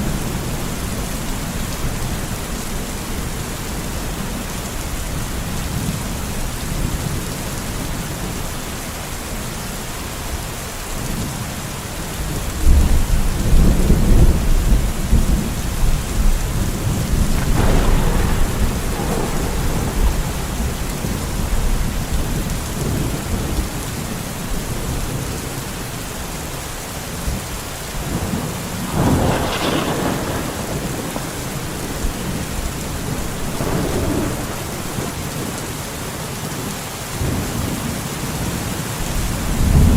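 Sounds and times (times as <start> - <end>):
steady rain: 0.0 - 39.9
deep thunder rumble: 12.2 - 25.4, 28.0 - 39.9
sharp thunder peal: 16.6 - 23.4, 28.1 - 35.6.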